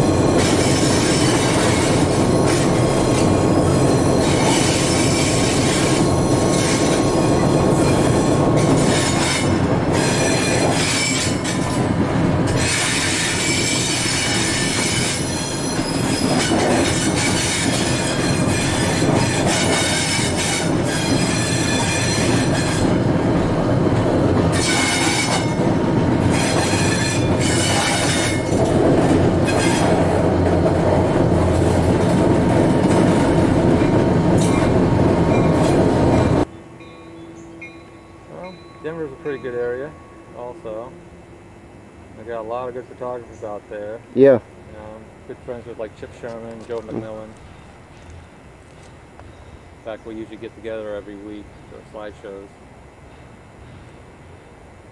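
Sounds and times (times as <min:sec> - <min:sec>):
wheels squealing on rails: 0:00.0 - 0:41.6
diesel locomotive drone: 0:00.0 - 0:54.9.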